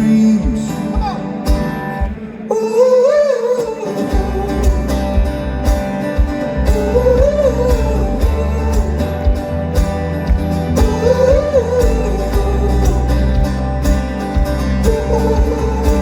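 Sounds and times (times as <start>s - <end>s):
steady drum beat: 0.0s - 2.4s, 4.1s - 16.0s
plucked guitar: 0.0s - 16.0s
bass: 4.1s - 16.0s
banjo: 4.2s - 16.0s.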